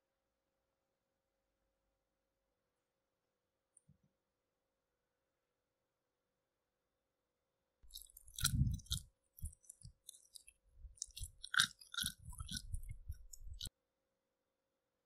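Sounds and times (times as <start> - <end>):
person chewing crunchy food: 7.9 - 13.7.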